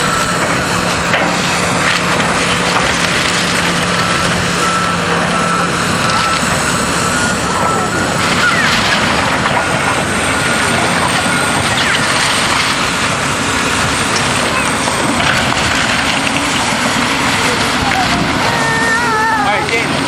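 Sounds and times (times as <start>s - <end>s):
debris being crushed: 0.0s - 4.7s, 7.5s - 18.4s
reversing alarm beeping: 0.0s - 19.2s
diesel machinery working: 0.0s - 20.0s.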